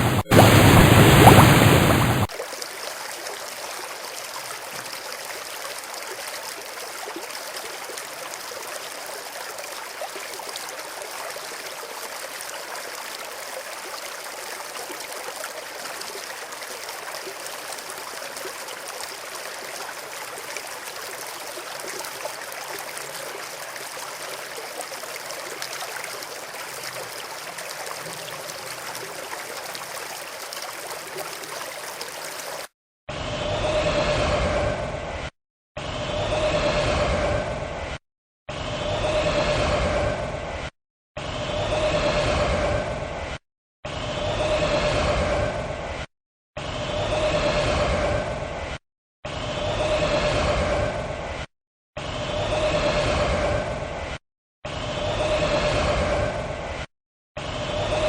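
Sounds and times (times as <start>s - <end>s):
stream water babbling: 0.0s - 32.7s.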